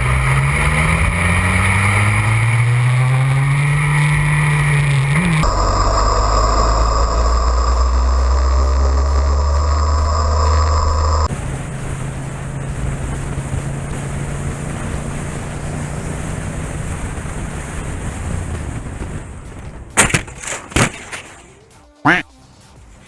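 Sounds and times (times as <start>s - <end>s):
motorcycle running: 0.0s - 20.5s, 21.5s - 22.3s
low hum: 0.0s - 21.6s
wind noise on microphone: 11.2s - 20.0s.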